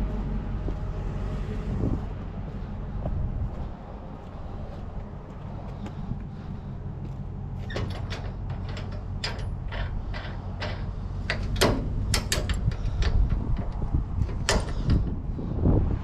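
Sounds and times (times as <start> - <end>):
low engine hum: 0.0 - 16.0
sharp knocks and clanks: 7.6 - 15.2.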